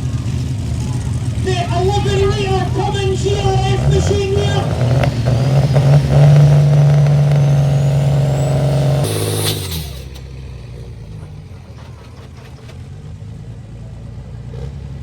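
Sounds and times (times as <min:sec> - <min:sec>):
diesel engine running hard: 0:00.0 - 0:15.0
air hiss: 0:09.0 - 0:10.2.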